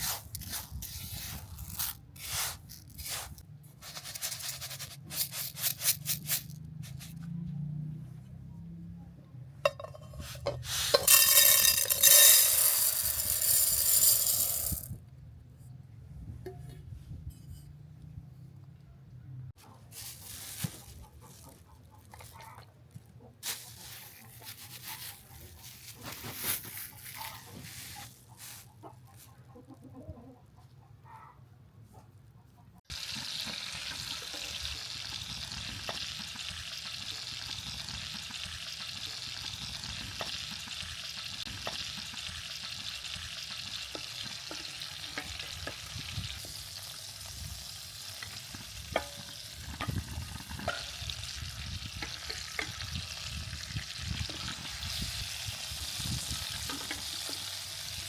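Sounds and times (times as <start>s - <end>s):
kitchen utensils clicking: 9.7s - 14.9s
food sizzling in a pan: 32.9s - 58.0s.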